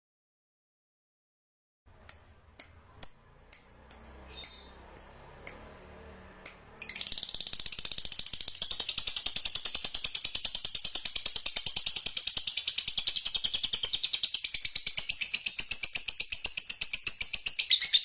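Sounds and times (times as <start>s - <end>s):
songbird call notes: 3.0s - 18.0s
bird chattering trill: 3.9s - 5.2s, 6.8s - 18.0s.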